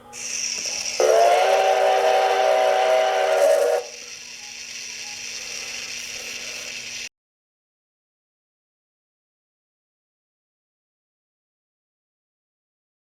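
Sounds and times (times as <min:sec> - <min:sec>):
toy train mechanism humming: 0:00.0 - 0:07.1
toy train whistle: 0:00.0 - 0:07.1.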